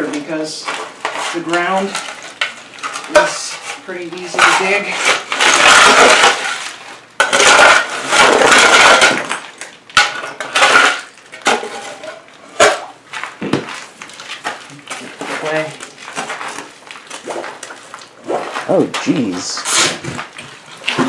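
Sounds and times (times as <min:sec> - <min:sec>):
tool scraping through wet gravel: 0:00.0 - 0:08.8, 0:14.3 - 0:21.0.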